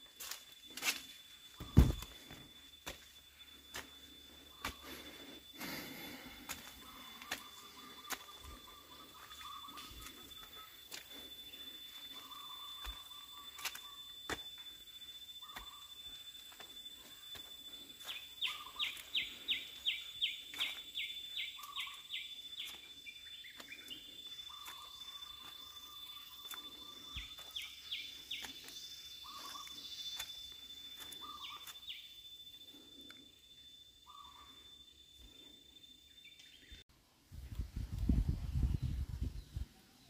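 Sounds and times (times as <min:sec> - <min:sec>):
high-pitched whine: 0:00.0 - 0:35.5
birds calling: 0:04.3 - 0:14.3, 0:15.4 - 0:33.1, 0:34.0 - 0:35.4.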